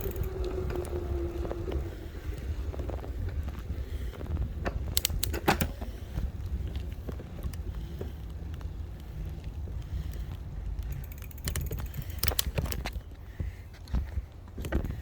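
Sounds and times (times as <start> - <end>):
sharp clicks and rattles: 0.0 - 1.0, 4.6 - 5.7, 10.1 - 13.0
wind and road noise: 0.0 - 15.0.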